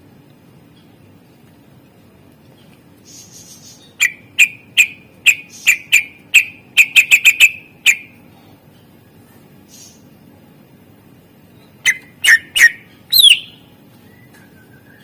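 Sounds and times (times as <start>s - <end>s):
scratchy bird chatter: 2.6s - 8.2s, 11.8s - 13.6s
bird singing: 3.0s - 8.2s, 11.5s - 15.0s.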